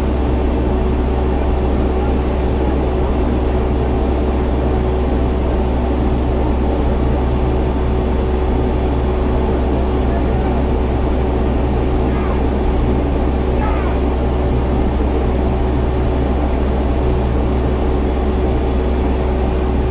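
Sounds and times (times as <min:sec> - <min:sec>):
truck engine droning: 0:08.7 - 0:18.4.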